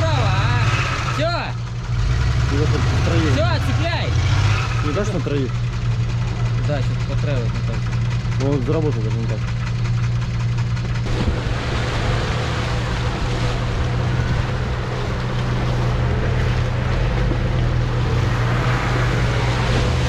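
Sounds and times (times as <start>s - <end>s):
vehicle engine running: 0.0s - 20.0s
broad rushing noise: 11.0s - 20.0s.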